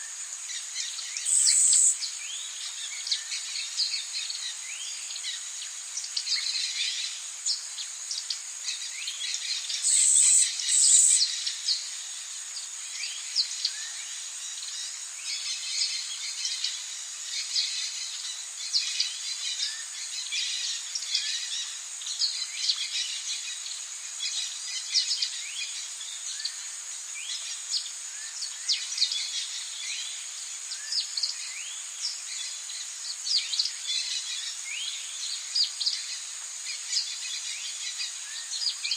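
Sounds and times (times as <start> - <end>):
insect drone: 0.0 - 38.9
birds chirping: 1.2 - 2.0, 9.7 - 11.4.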